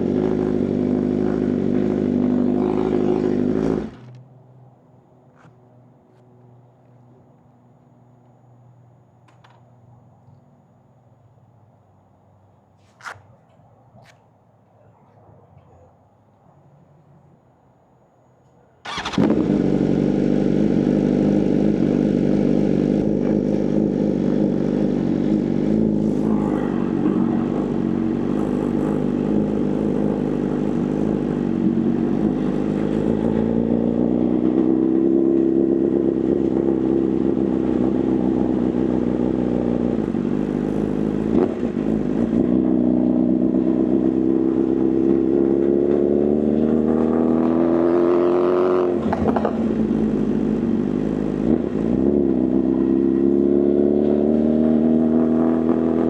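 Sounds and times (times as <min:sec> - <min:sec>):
motorcycle engine running: 0:00.0 - 0:04.2, 0:18.9 - 0:56.0.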